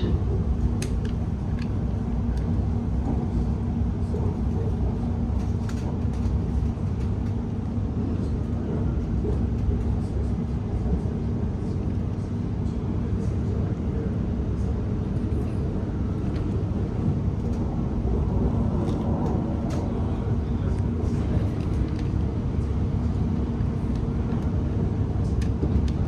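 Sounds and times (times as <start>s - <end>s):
train wheels rumbling on track: 0.0s - 26.0s.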